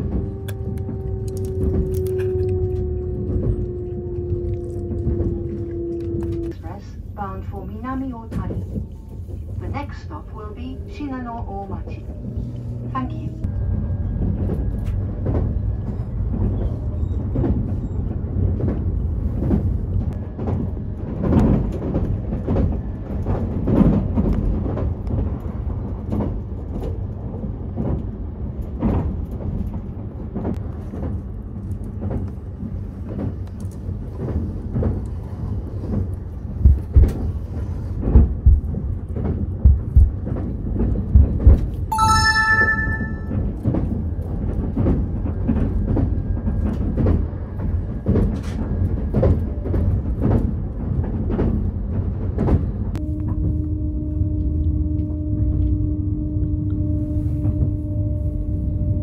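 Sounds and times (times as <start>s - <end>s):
moving train rumble: 0.0s - 59.0s
short ringing chime: 41.9s - 43.4s.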